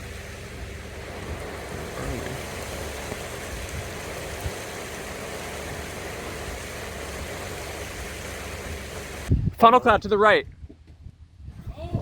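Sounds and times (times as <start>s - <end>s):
car running noise from inside: 0.0s - 4.4s.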